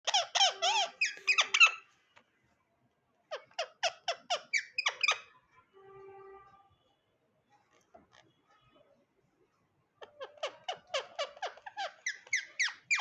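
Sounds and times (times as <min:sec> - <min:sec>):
parrot squawking chirps: 0:00.0 - 0:01.9, 0:03.3 - 0:05.3, 0:10.0 - 0:13.0.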